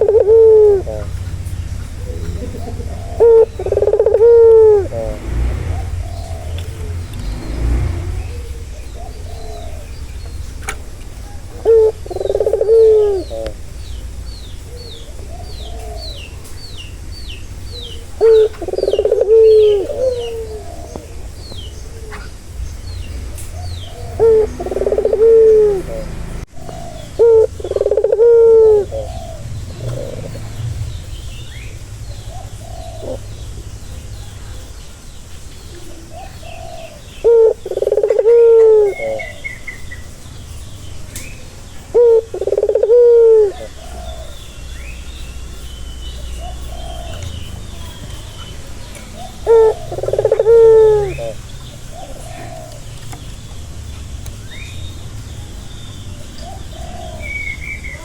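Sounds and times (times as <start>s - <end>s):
dove cooing: 0.0s - 34.7s, 35.6s - 53.5s, 56.2s - 58.0s
steady low rumble: 0.0s - 37.2s
small bird chirping: 0.0s - 58.0s.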